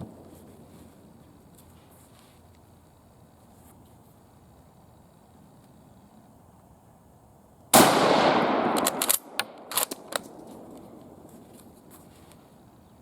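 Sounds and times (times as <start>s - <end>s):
rifle shot: 7.7s - 11.2s
rifle bolt metallic clicks: 8.4s - 11.1s.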